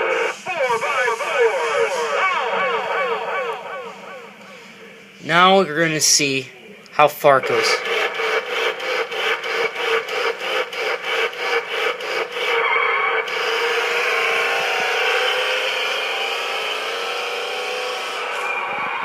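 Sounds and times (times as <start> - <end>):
toy truck motor grinding: 7.8 - 16.0.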